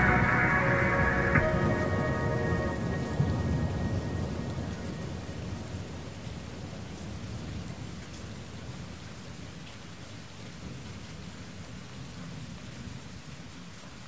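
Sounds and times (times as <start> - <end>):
low rumble of thunder: 0.0 - 8.7
steady rainfall: 0.0 - 14.0.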